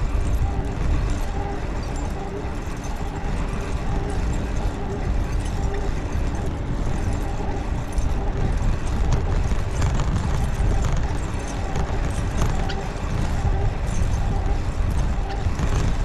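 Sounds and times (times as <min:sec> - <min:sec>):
bicycle road noise: 0:00.0 - 0:16.0
wind rumbling on microphone: 0:00.0 - 0:16.0.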